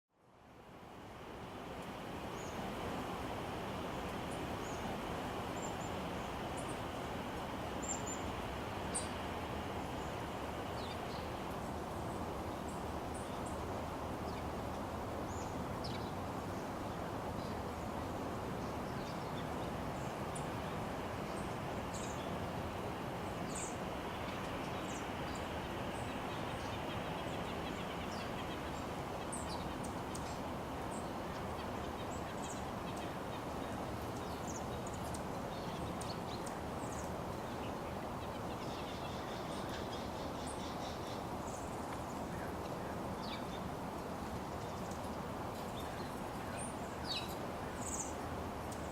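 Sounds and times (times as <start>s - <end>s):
steady background noise: 0.2s - 48.9s
small birds chirping: 18.6s - 43.8s, 44.4s - 48.9s.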